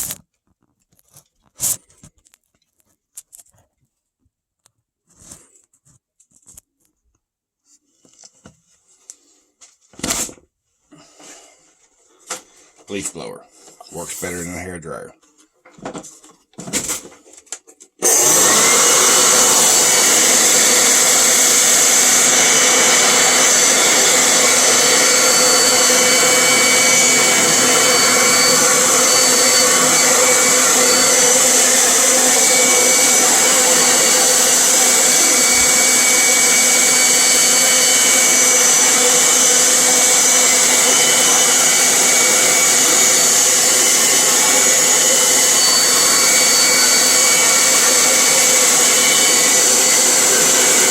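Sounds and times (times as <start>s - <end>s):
leaf blower running: 18.0s - 50.9s.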